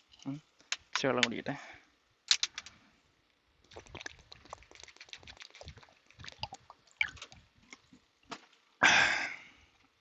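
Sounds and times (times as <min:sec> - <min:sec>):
person gulping water: 0:03.6 - 0:07.4.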